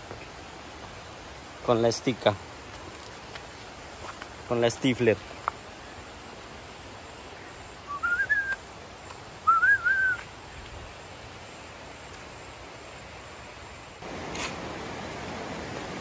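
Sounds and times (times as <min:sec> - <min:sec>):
bird whistled calls: 0:07.8 - 0:08.7, 0:09.4 - 0:10.3.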